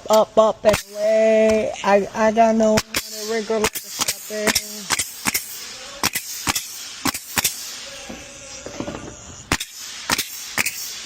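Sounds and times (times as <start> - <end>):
sharp bangs: 2.6 - 11.0.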